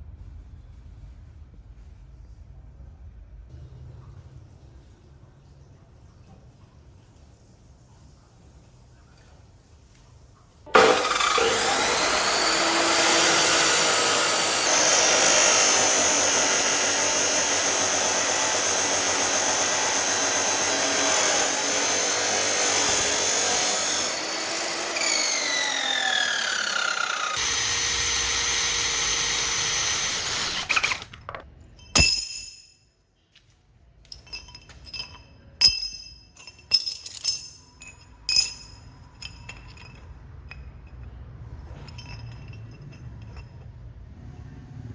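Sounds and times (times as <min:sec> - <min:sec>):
power tool running: 0:10.7 - 0:31.2.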